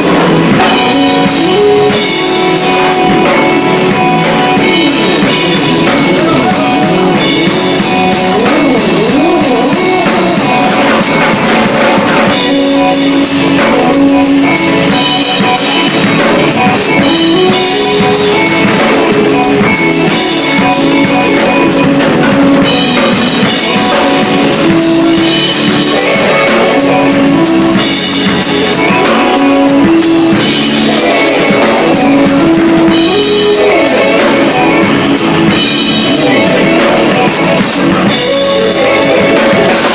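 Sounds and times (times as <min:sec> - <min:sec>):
electronic synth music with drum beat: 0:00.0 - 0:39.9.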